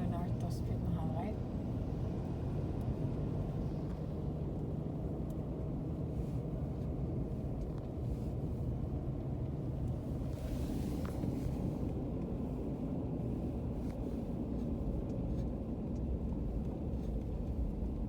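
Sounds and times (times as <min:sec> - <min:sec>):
car interior driving rumble: 0:00.0 - 0:18.0.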